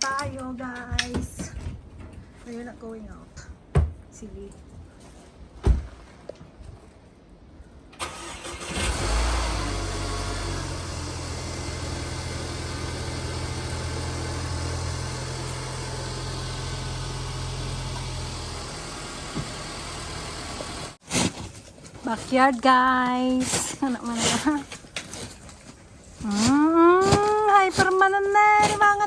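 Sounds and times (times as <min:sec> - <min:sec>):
engine idling: 0:08.0 - 0:21.0.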